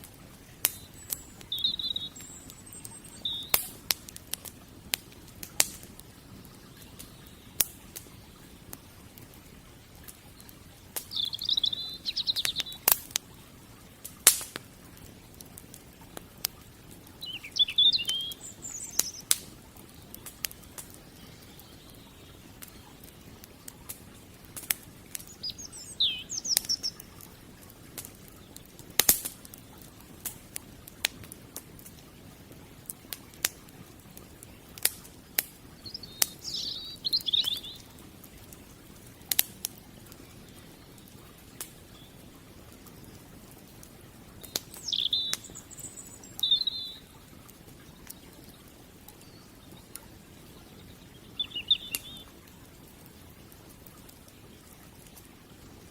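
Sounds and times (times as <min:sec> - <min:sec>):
wood fire crackling: 0:00.0 - 0:55.9
songbird chirping: 0:00.5 - 0:03.9, 0:06.0 - 0:08.5, 0:10.2 - 0:13.0, 0:17.0 - 0:23.2, 0:25.1 - 0:27.3, 0:35.6 - 0:38.7, 0:44.4 - 0:47.2, 0:47.8 - 0:52.4.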